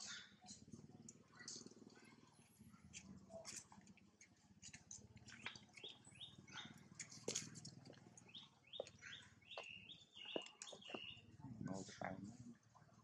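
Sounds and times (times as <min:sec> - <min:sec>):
bird chirps: 0:05.2 - 0:12.1.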